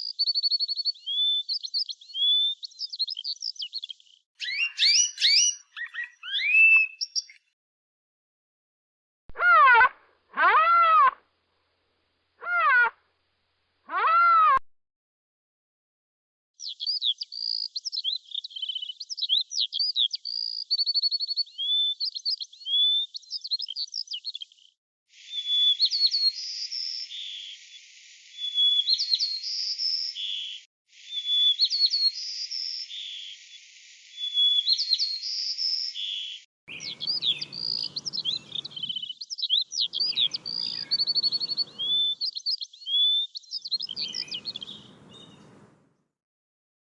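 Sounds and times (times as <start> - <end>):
songbird singing: 0.0 - 7.6, 16.6 - 24.6, 34.2 - 46.0.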